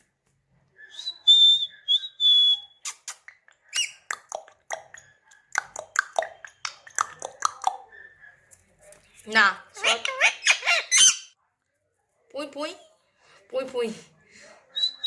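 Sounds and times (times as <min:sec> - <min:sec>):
parakeet whistling and chirping: 0:10.2 - 0:11.3.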